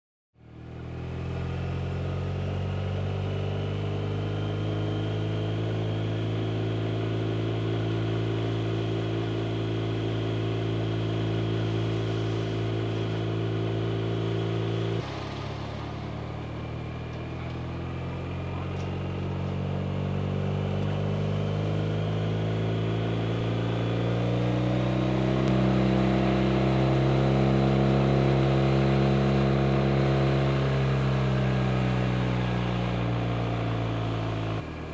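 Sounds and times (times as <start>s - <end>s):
motorcycle engine running: 0.4s - 34.9s.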